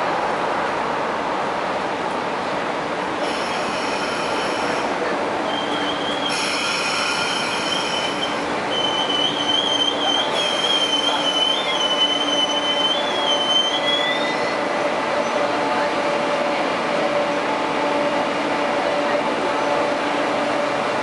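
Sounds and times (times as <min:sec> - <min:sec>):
train rumble: 0:00.0 - 0:21.0
train wheels squealing on rails: 0:03.2 - 0:15.5.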